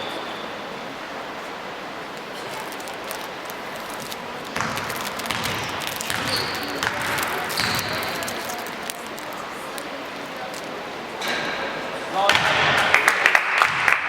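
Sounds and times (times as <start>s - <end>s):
basketball bouncing on gym floor: 4.0s - 9.4s, 12.3s - 12.8s, 13.7s - 13.9s.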